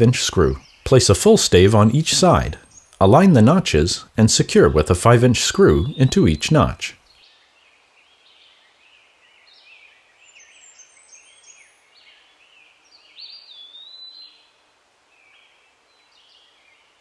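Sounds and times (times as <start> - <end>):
low hiss: 0.0 - 17.0
birds chirping and singing: 0.3 - 8.7, 12.8 - 14.4.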